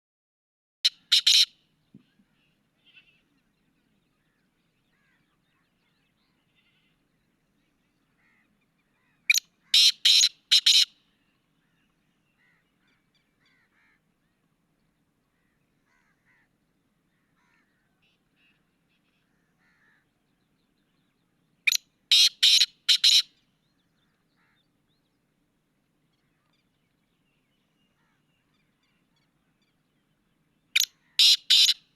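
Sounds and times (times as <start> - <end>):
bird calling: 0.8 - 3.6, 8.0 - 14.0, 21.6 - 24.8, 30.7 - 31.9.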